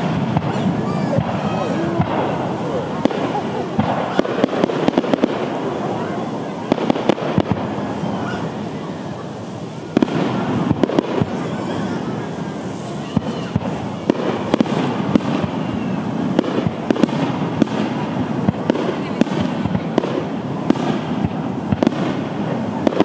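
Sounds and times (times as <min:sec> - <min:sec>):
firework shells bursting: 0:00.0 - 0:23.0.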